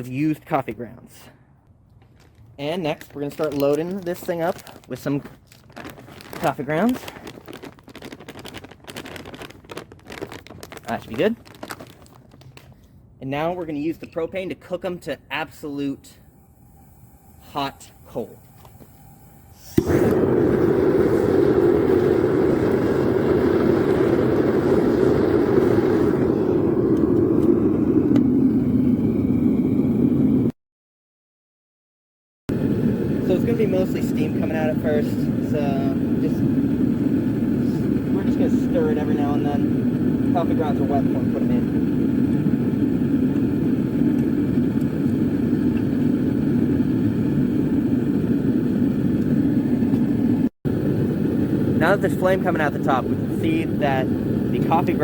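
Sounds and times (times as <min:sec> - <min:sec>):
propane burner flame rushing: 0:15.5 - 0:30.5, 0:32.5 - 0:55.0.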